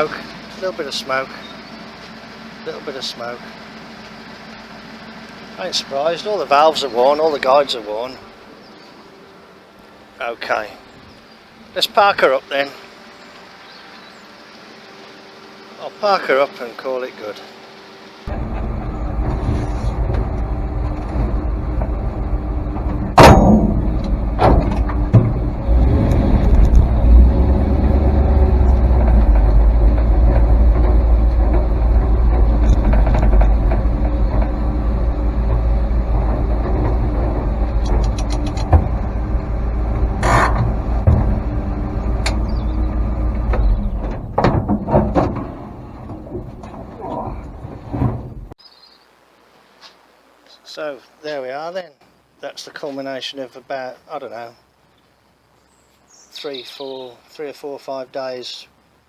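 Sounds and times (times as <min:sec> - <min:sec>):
truck engine running: 0:00.0 - 0:48.6
knocks: 0:18.3 - 0:48.6.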